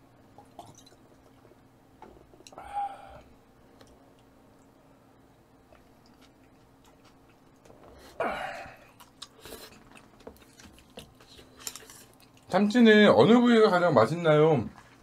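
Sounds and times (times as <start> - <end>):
chewing: 5.7 - 8.2, 8.8 - 12.8.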